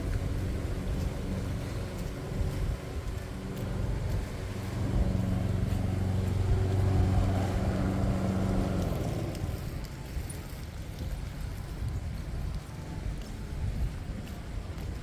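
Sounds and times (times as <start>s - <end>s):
engine droning: 0.0s - 10.9s.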